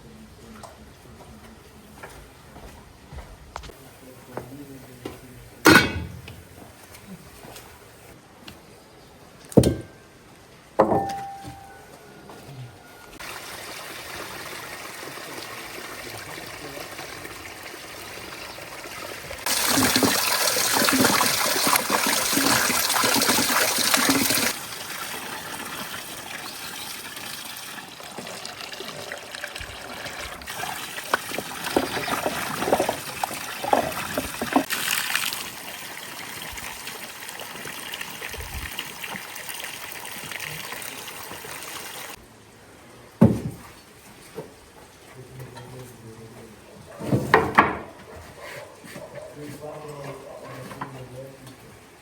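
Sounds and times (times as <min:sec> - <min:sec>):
water running: 0:13.2 - 0:42.2
water trickling: 0:13.2 - 0:42.2.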